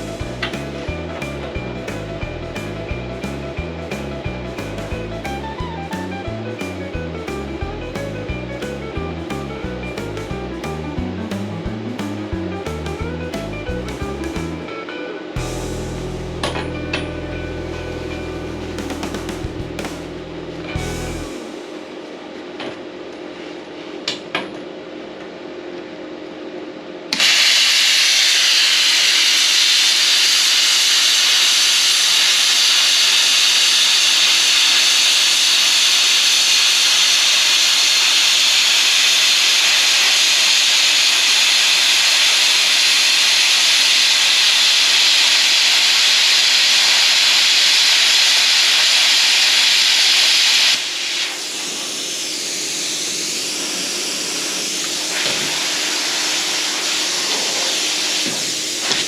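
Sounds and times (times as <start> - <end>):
plasma cutter hissing: 27.2 - 59.0.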